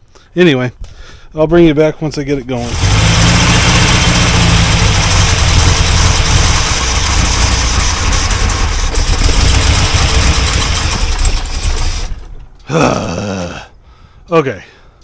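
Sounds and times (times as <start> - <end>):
car engine running: 2.6 - 12.6.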